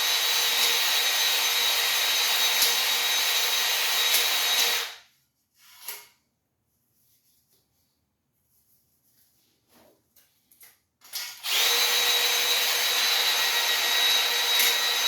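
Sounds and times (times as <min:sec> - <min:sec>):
electric drill motor whine: 0:00.0 - 0:05.0, 0:11.4 - 0:15.0.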